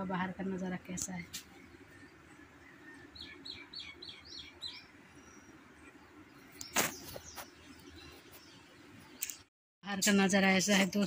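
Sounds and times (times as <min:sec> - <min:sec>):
small bird chirping: 0:01.0 - 0:09.5.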